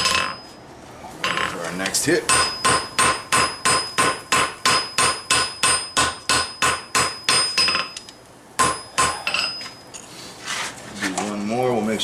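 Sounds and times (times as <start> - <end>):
anvil ringing: 2.3 - 8.0, 8.6 - 9.9
hammer blows on anvil: 8.6 - 9.8.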